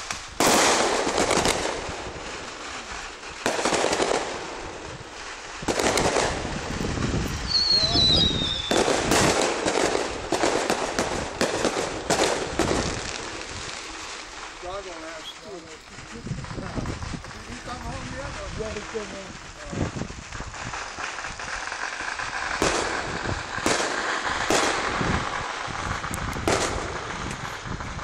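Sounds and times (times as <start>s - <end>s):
firecrackers crackling: 0.0s - 28.0s
high falling whistle: 7.4s - 8.9s.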